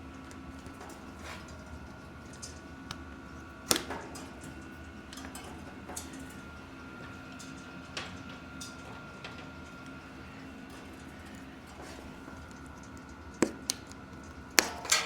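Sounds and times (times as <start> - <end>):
faint steady hum: 0.0 - 15.0
clicks and knocks of tools on bicycle wheel: 10.7 - 15.0.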